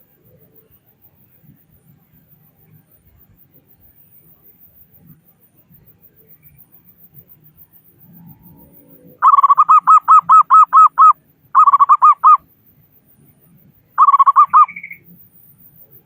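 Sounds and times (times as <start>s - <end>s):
dove cooing: 9.1s - 12.4s, 14.0s - 15.0s.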